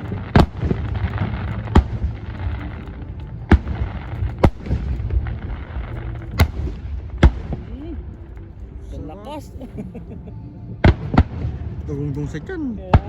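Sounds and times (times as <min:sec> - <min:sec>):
fireworks bangs: 0:00.0 - 0:08.1
low rumble: 0:00.0 - 0:13.0.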